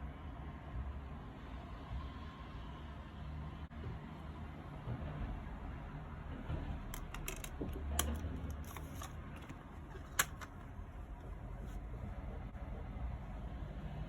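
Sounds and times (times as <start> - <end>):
plastic clicks and rustles: 6.9 - 11.8.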